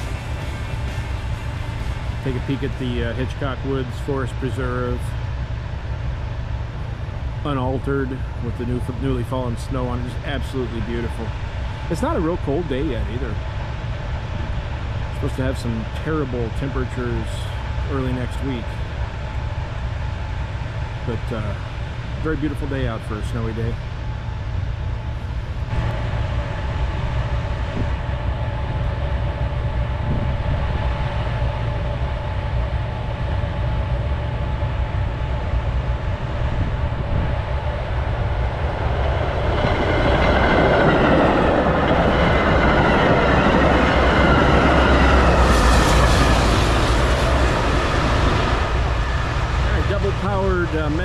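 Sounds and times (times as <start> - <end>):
switch heaters low roar: 0.0 - 5.2, 6.4 - 13.3, 25.1 - 51.0
diesel train passing: 0.0 - 51.0.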